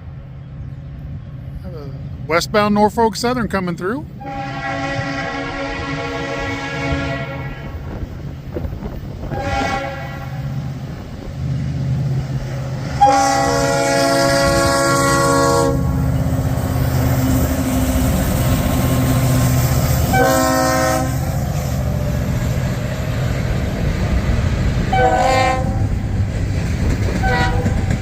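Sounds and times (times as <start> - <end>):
train rumble: 0.0 - 28.0
locomotive air horn blasts: 4.2 - 7.9, 9.3 - 10.6, 13.0 - 16.0, 20.1 - 21.4, 24.9 - 25.9, 27.2 - 27.9.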